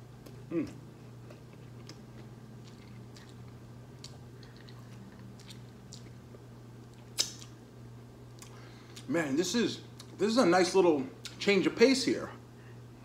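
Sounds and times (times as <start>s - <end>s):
person chewing crispy food: 0.2s - 7.6s
wet mouth clicks: 7.1s - 7.6s.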